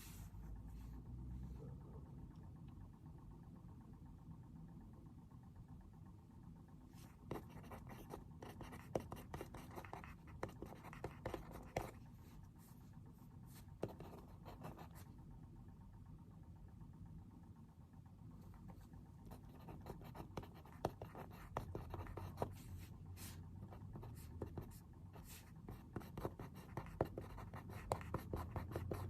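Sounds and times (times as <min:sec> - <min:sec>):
faint low hum: 0:00.0 - 0:29.0
pencil scratching on paper: 0:07.0 - 0:12.0, 0:13.5 - 0:15.0, 0:19.3 - 0:29.0.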